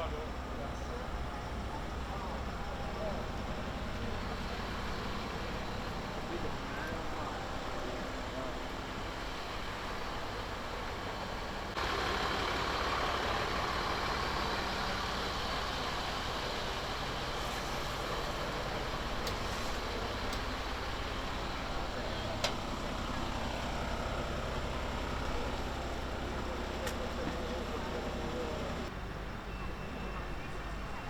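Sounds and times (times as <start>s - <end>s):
vehicle engines idling: 0.0s - 31.0s.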